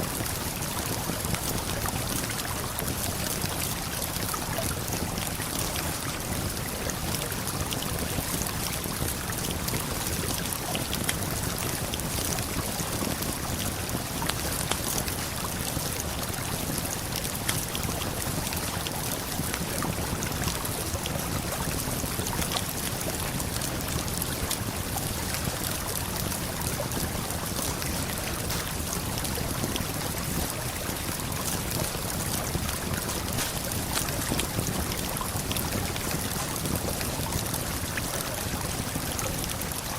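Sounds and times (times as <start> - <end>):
campfire crackles: 0.1 - 39.9
waterfall and river rushing: 32.8 - 34.6.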